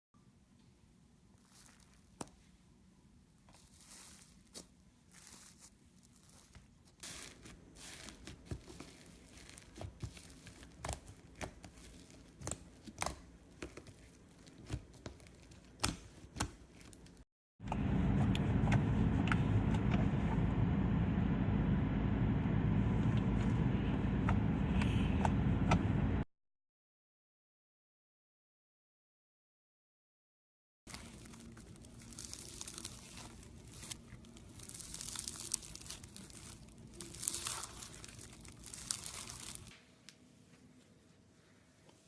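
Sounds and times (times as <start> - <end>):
slime squishing and crackling: 1.4 - 2.5, 3.4 - 17.2, 30.9 - 39.8.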